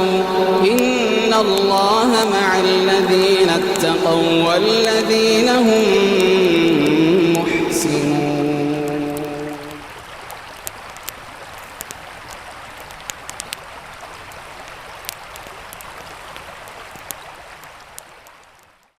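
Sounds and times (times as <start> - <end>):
river flowing: 0.0 - 18.8
campfire crackling and popping: 8.7 - 18.8.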